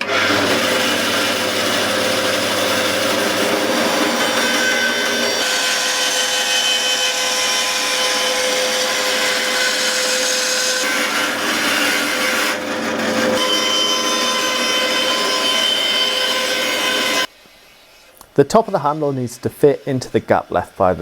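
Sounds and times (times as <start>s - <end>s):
power saw cutting wood: 0.0s - 17.3s, 18.5s - 21.0s.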